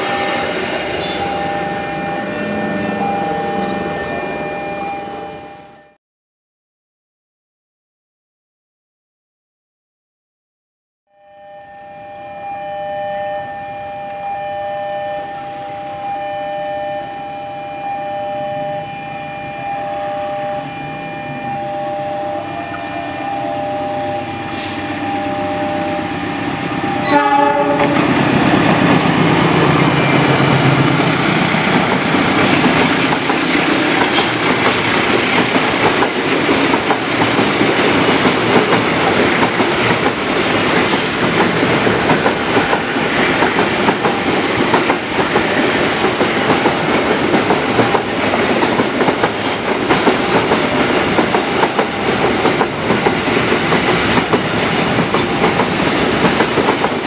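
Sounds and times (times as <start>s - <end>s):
train wheels rumbling on rails: 0.0s - 5.6s, 20.4s - 57.0s
train horn: 0.0s - 6.0s, 11.1s - 34.7s.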